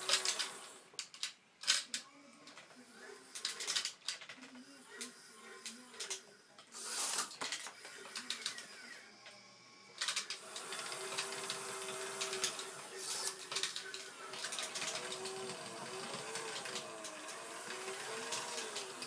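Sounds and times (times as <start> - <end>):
small electric motors whining: 0.0 - 0.8, 4.6 - 19.0.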